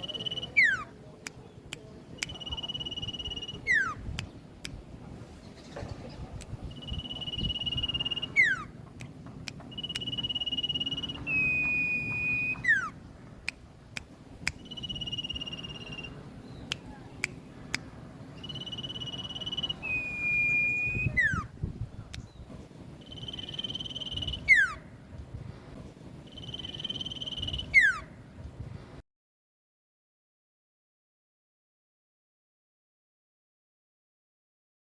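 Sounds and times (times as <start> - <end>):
songbird call: 0.0 - 1.0, 1.6 - 4.2, 5.4 - 8.7, 9.5 - 13.0, 14.5 - 17.8, 18.4 - 24.9, 26.2 - 28.2
sharp clicks: 9.0 - 10.4.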